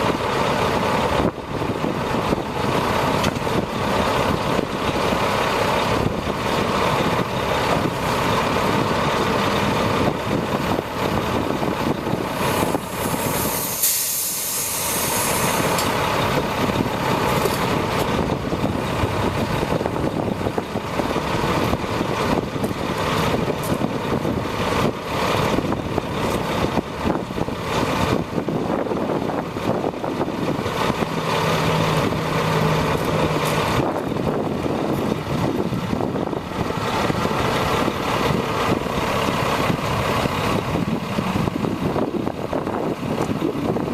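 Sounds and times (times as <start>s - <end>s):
truck diesel engine running: 0.0s - 43.9s
air hiss: 12.4s - 15.9s.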